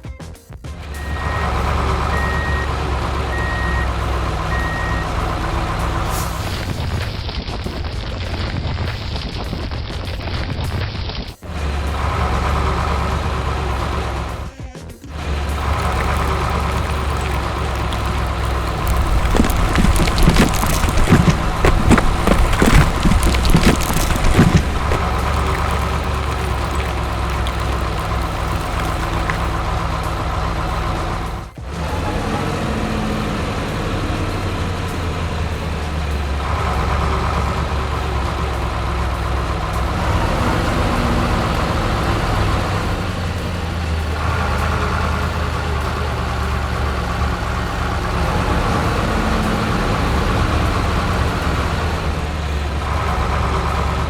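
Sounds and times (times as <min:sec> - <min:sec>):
heavy vehicle engine idling: 0:00.8 - 0:06.7, 0:11.5 - 0:16.8, 0:29.4 - 0:54.0.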